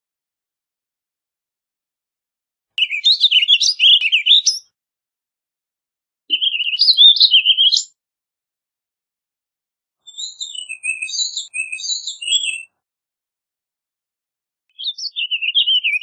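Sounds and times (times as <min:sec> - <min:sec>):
bird singing warbled phrases: 0:02.8 - 0:04.8, 0:06.3 - 0:08.0, 0:10.0 - 0:12.8, 0:14.7 - 0:16.0.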